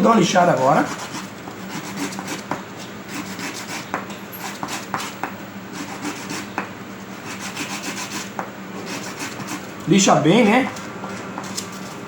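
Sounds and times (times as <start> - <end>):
sandpaper rasping on plastic: 0.7 - 2.5, 3.1 - 5.2, 5.8 - 6.5, 7.1 - 9.7.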